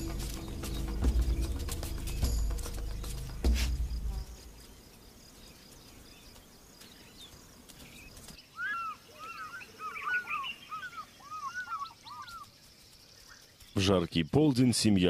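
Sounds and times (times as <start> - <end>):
bird chirping: 0.0 - 15.0
quiet outdoor ambience: 0.0 - 15.0.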